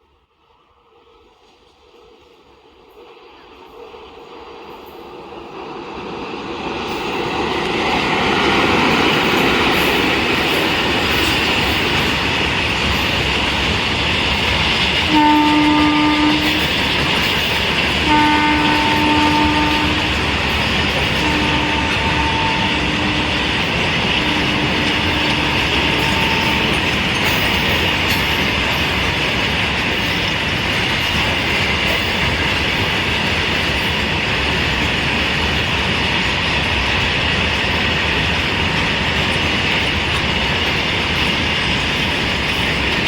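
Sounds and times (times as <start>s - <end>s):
freight train passing: 0.0s - 43.0s
locomotive horn blasts: 15.0s - 17.0s, 17.9s - 27.3s.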